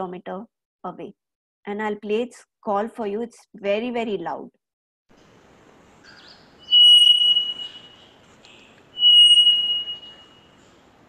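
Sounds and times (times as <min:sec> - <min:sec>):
bird calling clear notes: 0:06.0 - 0:10.7.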